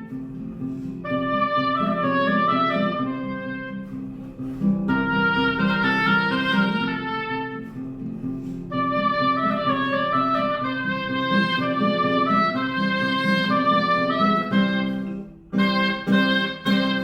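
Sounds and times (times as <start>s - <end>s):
reedy melody notes: 0.0s - 17.0s.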